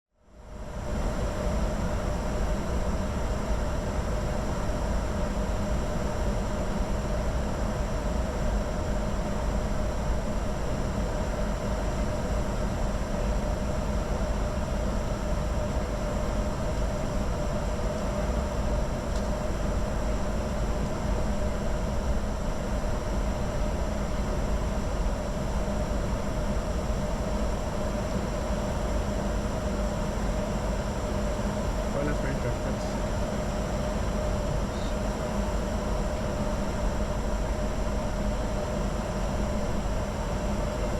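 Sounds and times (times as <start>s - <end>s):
faint steady whine: 0.2s - 40.9s
jet airflow and engine noise: 0.3s - 40.9s.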